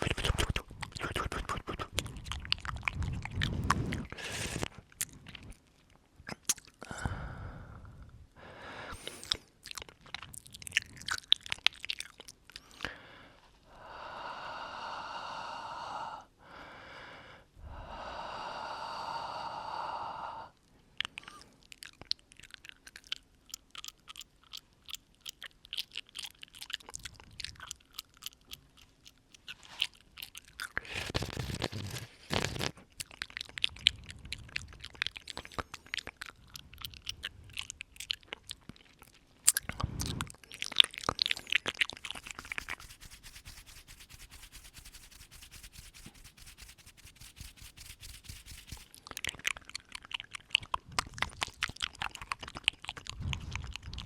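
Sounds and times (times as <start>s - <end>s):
wet mouth clicks and smacks: 0.0s - 6.9s, 9.0s - 13.0s, 21.0s - 54.0s
breath blown onto microphone: 2.9s - 4.8s, 42.1s - 49.0s, 53.1s - 54.0s.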